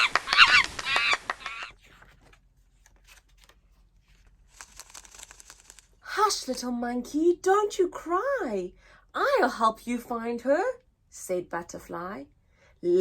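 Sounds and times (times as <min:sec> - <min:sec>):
soft rustle: 0:01.7 - 0:06.0.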